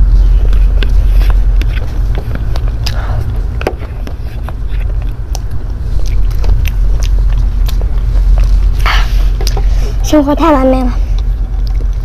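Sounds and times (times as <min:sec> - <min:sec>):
person chewing: 0:00.0 - 0:10.1, 0:11.0 - 0:12.0
low rumble: 0:00.0 - 0:12.0.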